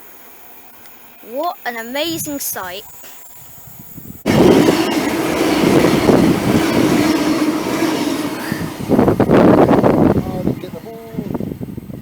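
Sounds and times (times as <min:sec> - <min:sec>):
train passing close by: 0:04.2 - 0:12.0.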